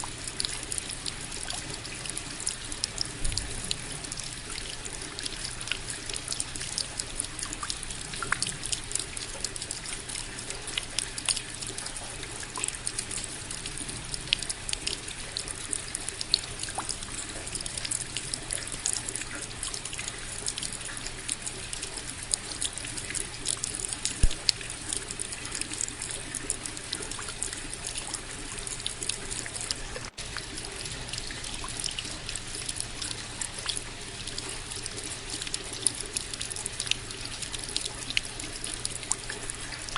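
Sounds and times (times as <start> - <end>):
rain drops hitting: 0.0 - 39.9
water trickling: 0.0 - 39.9.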